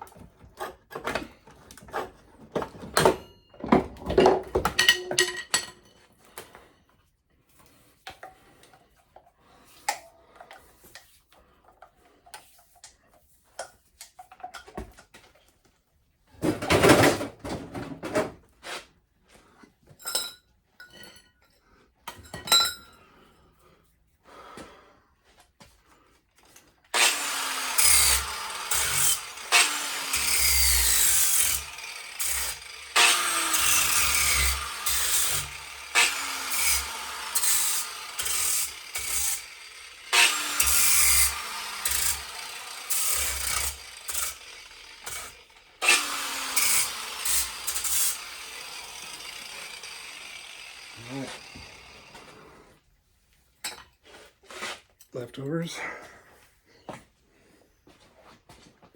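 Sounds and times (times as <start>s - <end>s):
metal grinding with ringing tone: 27.0s - 52.2s.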